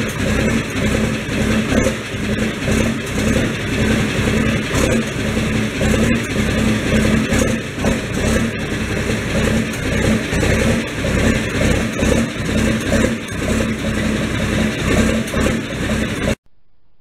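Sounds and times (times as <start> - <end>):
engine running with low pulse: 0.0 - 17.0.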